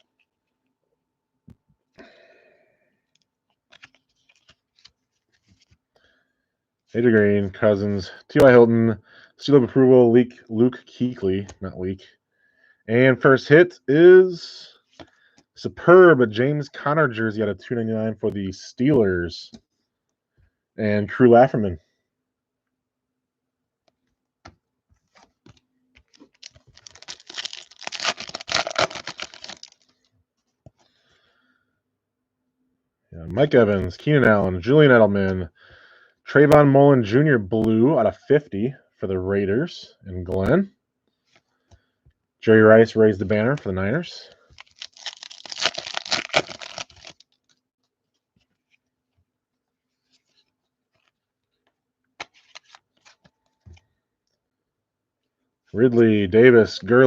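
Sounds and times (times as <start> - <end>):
cards rustling and flicking: 3.2 - 5.8, 24.4 - 30.9, 44.5 - 49.2, 50.0 - 53.8
foil wrapper crinkling and tearing: 26.1 - 30.0, 44.5 - 47.6, 52.3 - 53.2.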